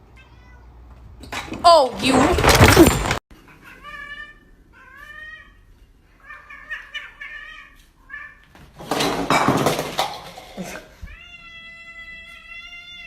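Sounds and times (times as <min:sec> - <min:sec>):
cat meowing: 0:00.1 - 0:00.7, 0:03.5 - 0:08.5, 0:11.0 - 0:13.0.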